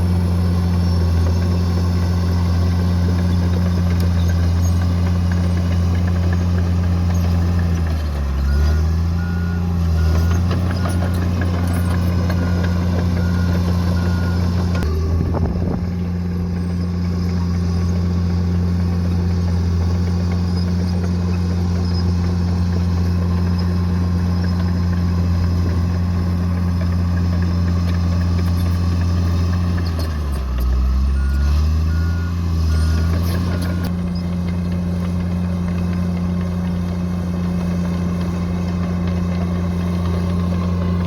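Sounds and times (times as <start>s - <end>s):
bulldozer diesel engine under load: 0.0s - 41.0s
reversing alarm beeping: 8.4s - 15.0s, 30.4s - 33.9s.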